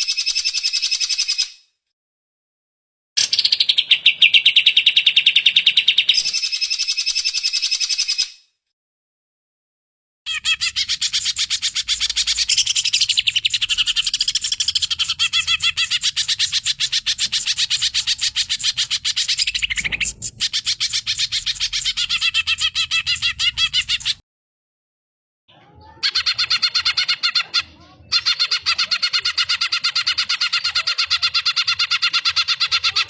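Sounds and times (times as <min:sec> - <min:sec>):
bird singing rapid chattering notes: 0:10.3 - 0:24.2.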